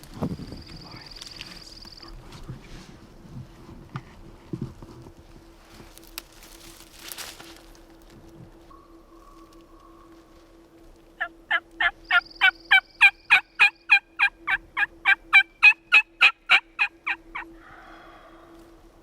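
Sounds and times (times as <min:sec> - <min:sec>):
turkey yelps: 0:11.2 - 0:17.5.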